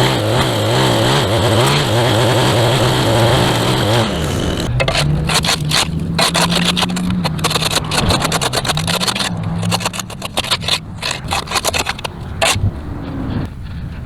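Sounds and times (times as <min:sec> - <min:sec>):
string trimmer running: 0:00.0 - 0:12.6
trimmer line scraping pavement: 0:00.0 - 0:13.5.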